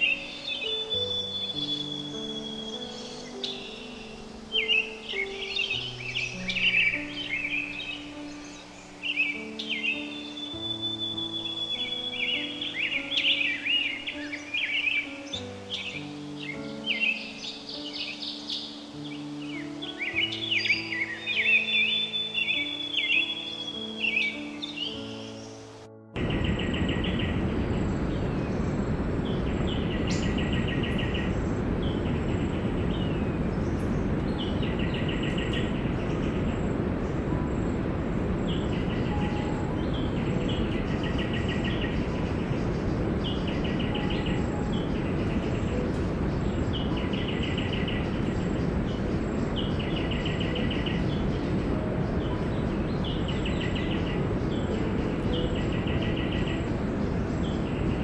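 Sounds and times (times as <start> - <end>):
steady rushing noise: 23.8 - 58.0.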